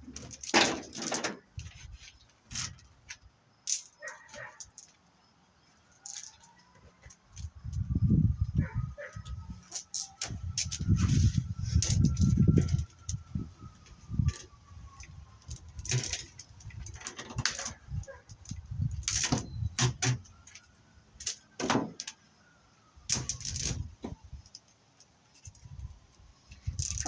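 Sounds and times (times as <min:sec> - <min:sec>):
metal cable clinking and scraping: 0:05.8 - 0:08.0, 0:09.0 - 0:22.2, 0:26.5 - 0:27.0.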